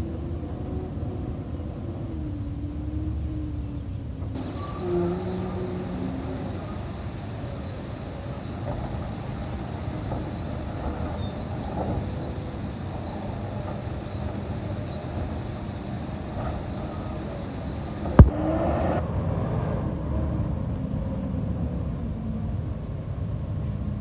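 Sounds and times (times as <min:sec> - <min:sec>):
garbage truck engine rumbling: 0:04.4 - 0:18.3.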